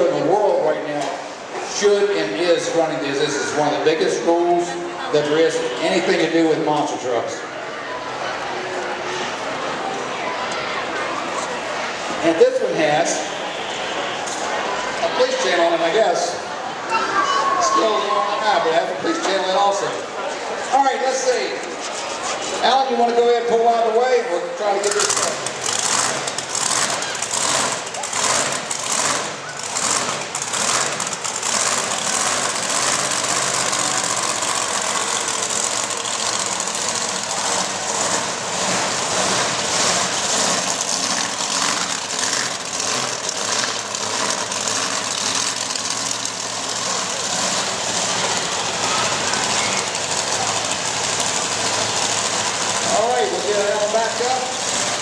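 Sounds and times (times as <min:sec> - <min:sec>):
monster truck engine running: 0:17.9 - 0:55.0.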